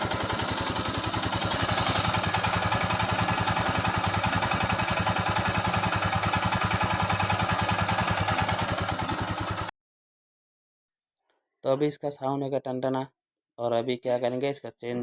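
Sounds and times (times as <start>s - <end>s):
motorcycle engine idling: 0.0s - 9.7s.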